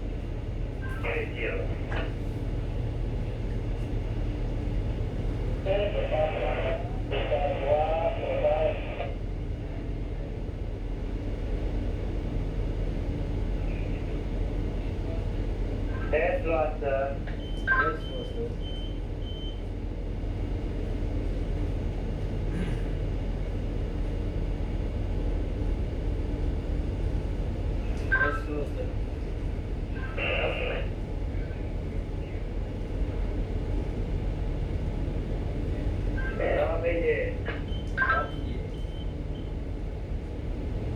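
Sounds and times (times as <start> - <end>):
ship machinery humming: 0.0 - 40.9
two-way radio crackle: 5.7 - 9.1.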